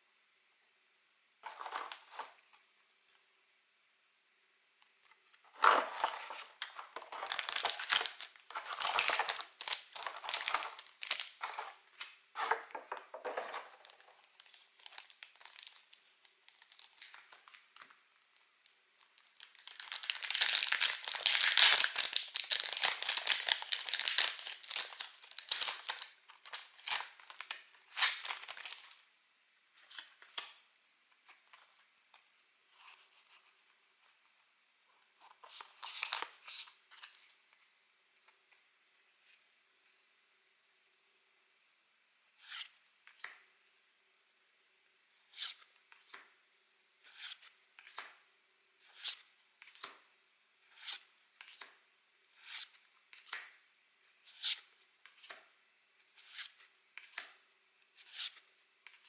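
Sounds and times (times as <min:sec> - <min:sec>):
packaging crinkling and tearing: 0:05.6 - 0:11.6, 0:13.7 - 0:17.6, 0:19.1 - 0:29.0.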